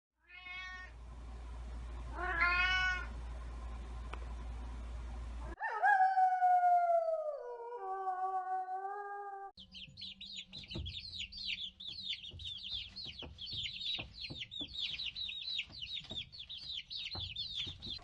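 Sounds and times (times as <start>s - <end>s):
cat meowing: 0.2s - 0.9s, 2.1s - 3.1s
low hum: 0.9s - 5.6s.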